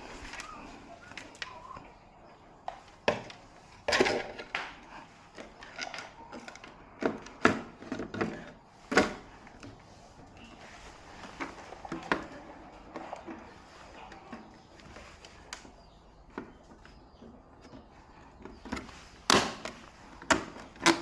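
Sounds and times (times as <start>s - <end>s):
hard objects knocking and clattering: 19.3s - 19.7s.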